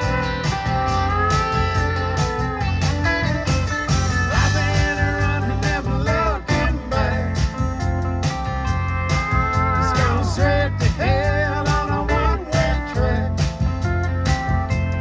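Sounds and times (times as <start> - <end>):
lead guitar solo: 0.0 - 4.4, 7.6 - 10.5
bass drums and cymbals: 0.0 - 15.0.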